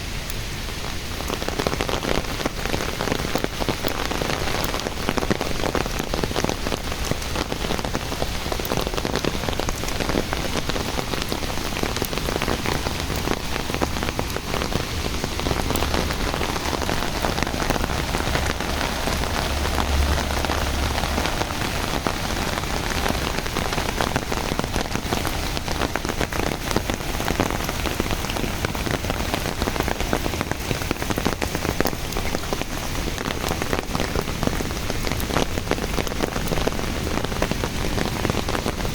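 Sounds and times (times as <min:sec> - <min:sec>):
rain falling: 0:00.0 - 0:38.9
low rumble: 0:14.8 - 0:23.1.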